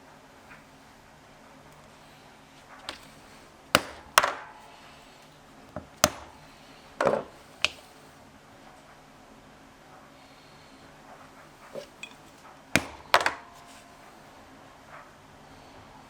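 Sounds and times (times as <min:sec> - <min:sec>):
tools knocking on wooden workbench: 0:07.0 - 0:07.8, 0:12.8 - 0:13.7.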